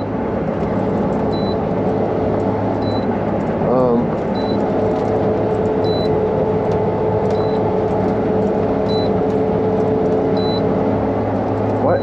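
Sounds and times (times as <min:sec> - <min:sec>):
combine harvester drone with whine: 0:00.0 - 0:12.0
high-pitched warning beep: 0:01.3 - 0:01.6, 0:02.8 - 0:03.1, 0:04.4 - 0:04.6, 0:05.8 - 0:06.2, 0:07.3 - 0:07.7, 0:08.9 - 0:09.2, 0:10.4 - 0:10.7.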